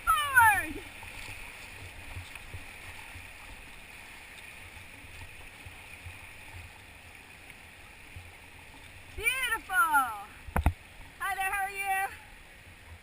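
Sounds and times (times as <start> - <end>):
whitewater river rushing: 0.0 - 5.2.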